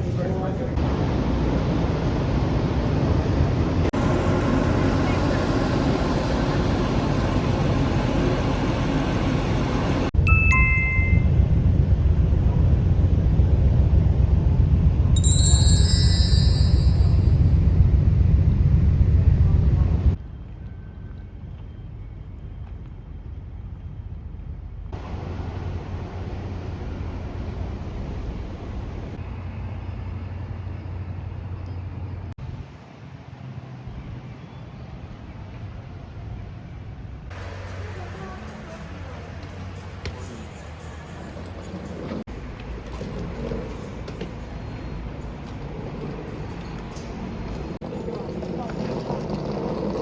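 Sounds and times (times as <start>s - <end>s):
engine and wind noise: 0.0s - 50.0s
ship engines humming: 0.8s - 10.2s, 11.4s - 20.2s, 25.0s - 33.6s
two-note ding-dong chime: 10.2s - 11.3s, 15.2s - 17.6s.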